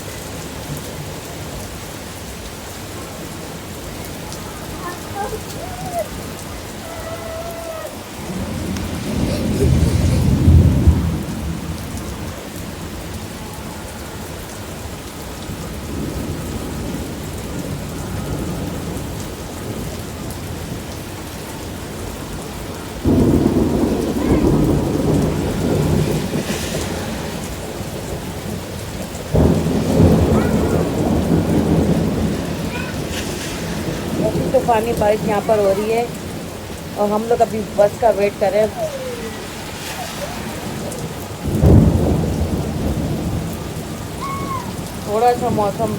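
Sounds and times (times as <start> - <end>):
heavy rain pouring: 0.0 - 45.9
loud low thunder rumbles: 3.3 - 13.2, 23.0 - 45.9.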